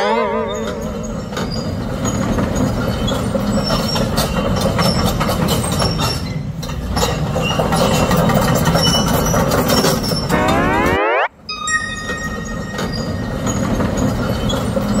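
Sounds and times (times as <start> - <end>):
excavator rumbling and clattering: 0.0 - 10.3.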